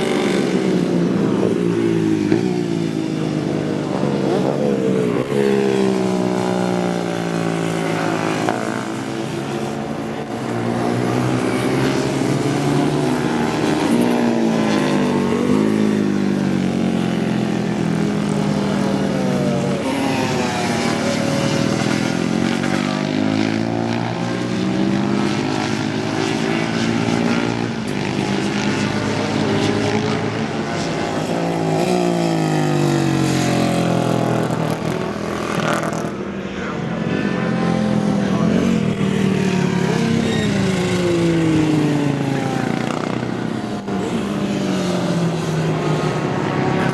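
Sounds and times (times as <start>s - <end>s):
racing motorcycle engines: 0.0s - 46.9s.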